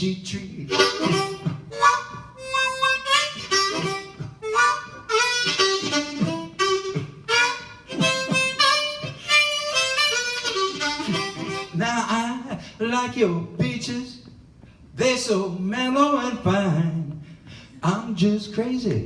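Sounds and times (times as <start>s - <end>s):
blues harmonica: 0.2s - 12.4s
person singing: 0.7s - 2.0s.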